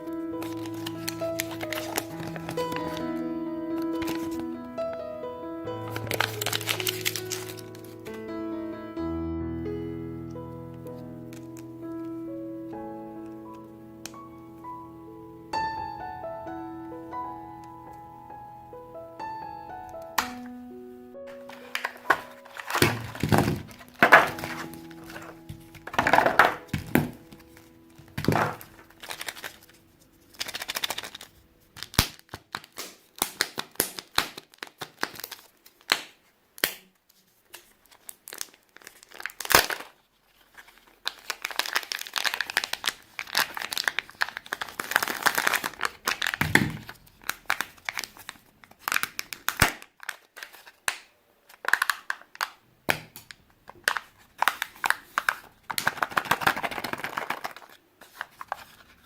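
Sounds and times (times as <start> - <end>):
crinkling and rustling handling: 0.0 - 3.2, 3.8 - 4.5, 5.8 - 8.2, 21.3 - 59.0.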